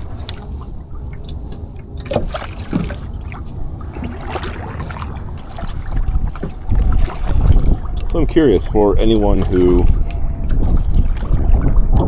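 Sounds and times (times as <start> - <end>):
kayak paddle splashes: 0.0 - 12.0
steady low rumble: 0.0 - 12.0.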